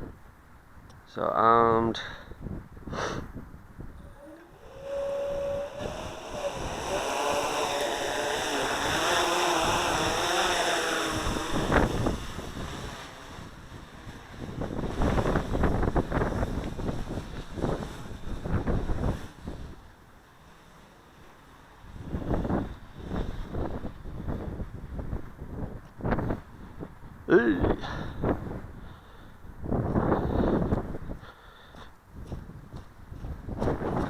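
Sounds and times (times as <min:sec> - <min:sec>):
wind buffeting microphone: 0:02.3 - 0:20.0, 0:21.7 - 0:34.0
quadcopter motors and propellers: 0:04.0 - 0:28.6.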